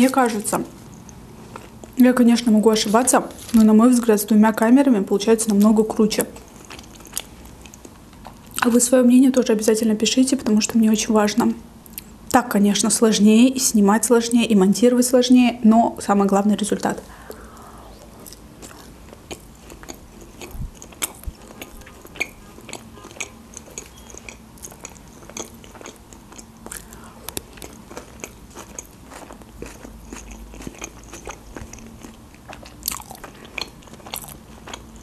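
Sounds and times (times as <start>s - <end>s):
person chewing with mouth clicks: 6.2s - 8.6s, 17.0s - 35.0s.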